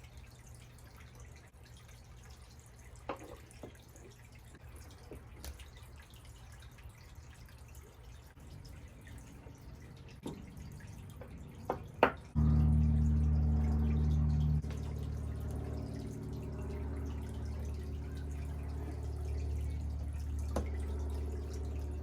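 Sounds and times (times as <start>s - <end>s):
electric motor humming: 12.4s - 20.2s.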